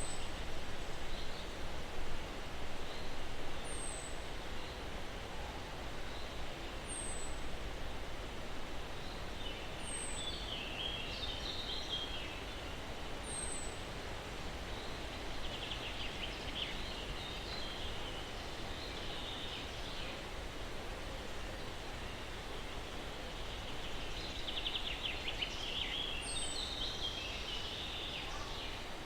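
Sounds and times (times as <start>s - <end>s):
breeze rustling pine trees: 0.0s - 29.0s
songbirds calling: 21.2s - 29.0s.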